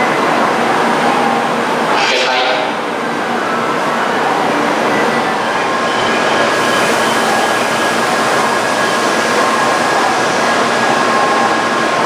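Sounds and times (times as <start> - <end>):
train rushing hum: 0.0 - 12.0.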